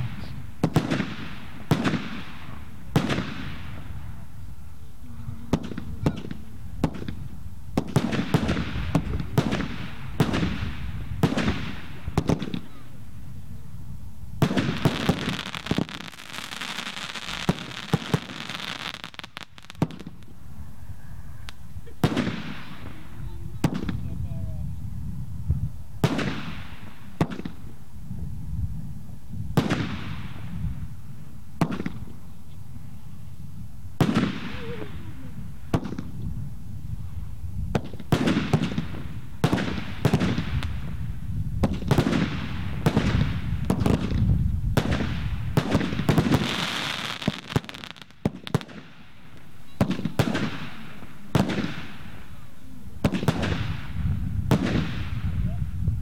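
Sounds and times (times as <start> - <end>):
fireworks bangs with echo: 0.0 - 4.2, 5.5 - 12.9, 14.4 - 20.4, 21.5 - 24.3, 26.0 - 27.8, 29.5 - 30.9, 31.6 - 32.2, 34.0 - 36.2, 37.7 - 55.6
fireworks hissing crackle: 0.0 - 56.0.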